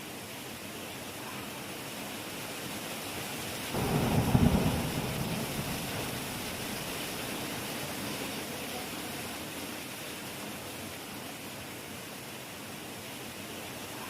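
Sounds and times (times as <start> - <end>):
heavy rain falling: 2.0 - 11.4
thunder rumble: 3.8 - 7.8.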